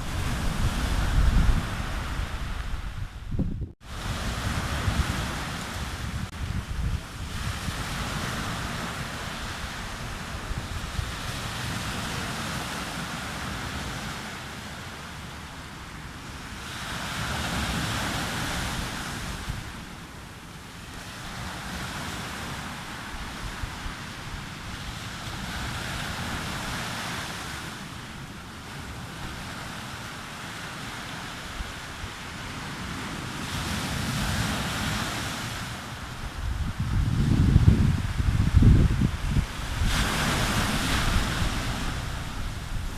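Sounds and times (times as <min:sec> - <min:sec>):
wind rumbling on microphone: 0:00.0 - 0:14.1, 0:31.2 - 0:42.9
sea waves breaking on beach: 0:00.0 - 0:42.9.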